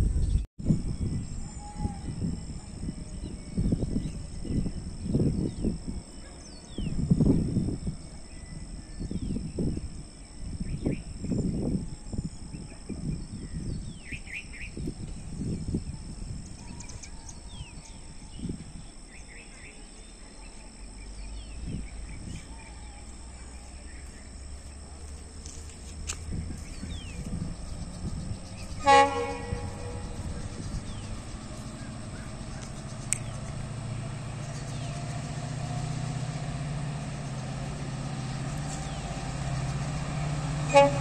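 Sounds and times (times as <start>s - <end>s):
locomotive rumble: 20.5s - 41.0s
locomotive horn blast: 28.6s - 32.4s, 40.0s - 41.0s.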